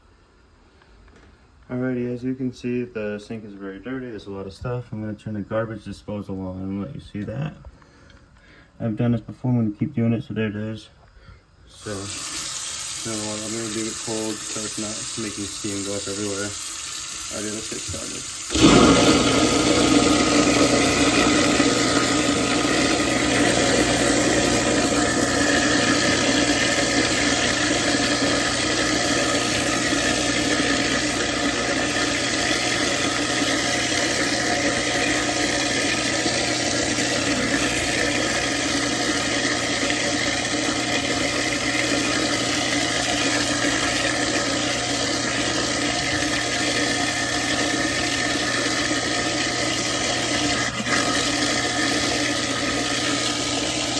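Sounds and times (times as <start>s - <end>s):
garbage disposal motor hum: 11.6s - 53.9s
tap water flowing: 11.8s - 53.9s.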